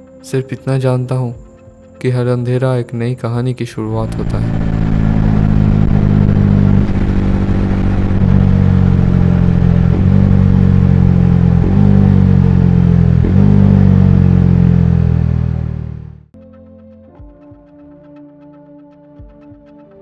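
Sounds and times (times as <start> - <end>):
soft music: 0.0 - 4.6, 16.4 - 20.0
motorcycle engine running: 4.0 - 16.3.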